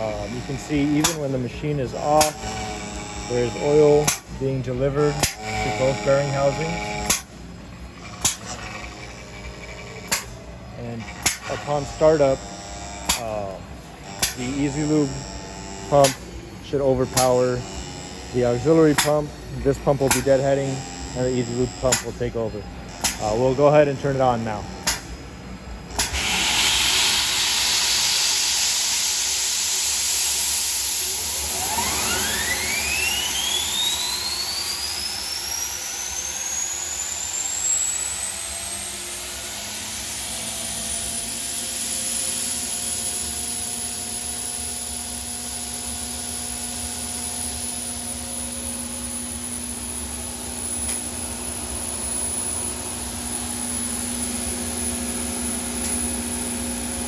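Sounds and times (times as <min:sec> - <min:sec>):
turbine rushing noise: 0:00.0 - 0:07.8
turbine whine rising in pitch: 0:00.0 - 0:57.0.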